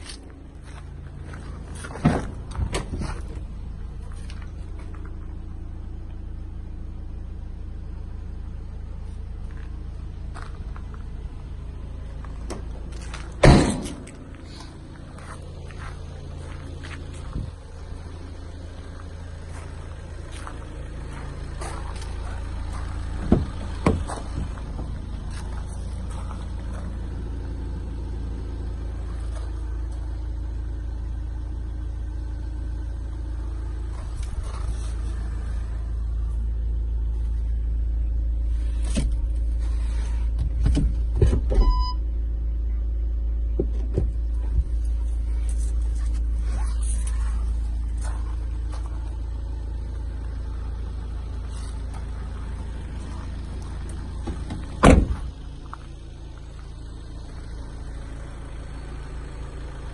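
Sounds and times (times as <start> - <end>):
diesel engine idling: 0.0 - 59.9
short electronic beep: 41.6 - 42.0.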